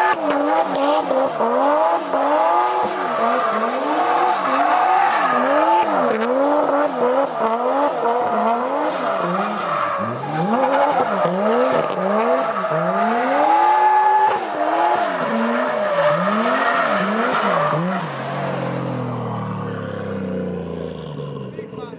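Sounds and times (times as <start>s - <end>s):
car engine revving: 0.0s - 21.9s.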